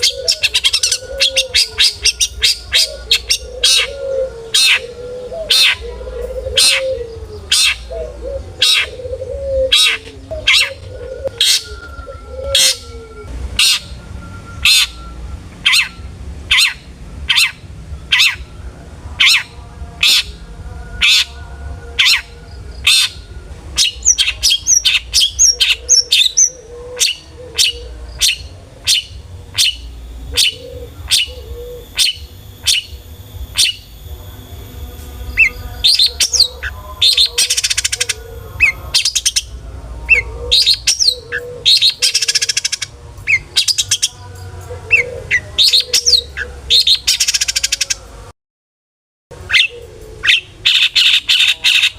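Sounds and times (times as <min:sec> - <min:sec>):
shrike singing sharp calls: 0:00.0 - 0:48.1, 0:49.4 - 0:51.9
high bird chirps: 0:23.8 - 0:34.2, 0:35.3 - 0:44.2.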